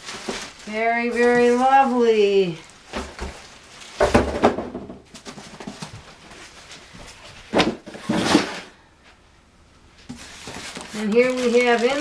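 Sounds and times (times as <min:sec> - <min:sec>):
box contents knocking and clattering: 0:00.0 - 0:01.9, 0:02.6 - 0:08.8
packing rustling and scraping: 0:00.0 - 0:08.8, 0:10.0 - 0:12.0.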